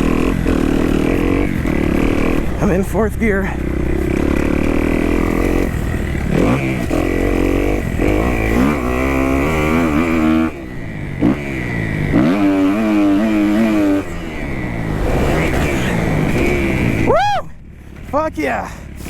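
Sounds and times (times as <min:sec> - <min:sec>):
motorcycle engine revving hard: 0:00.0 - 0:17.2.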